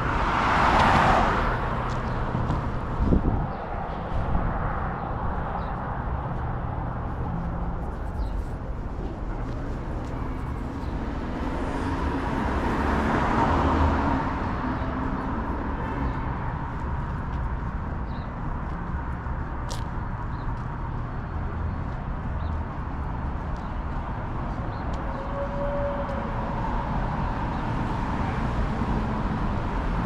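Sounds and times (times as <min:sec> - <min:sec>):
road traffic rumble: 0:00.0 - 0:30.0
vehicle passing close by: 0:10.0 - 0:16.5.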